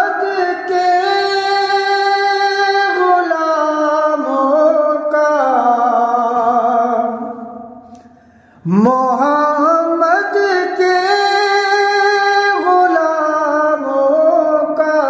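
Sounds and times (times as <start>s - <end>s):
man singing unaccompanied: 0.0s - 7.7s, 8.6s - 15.0s.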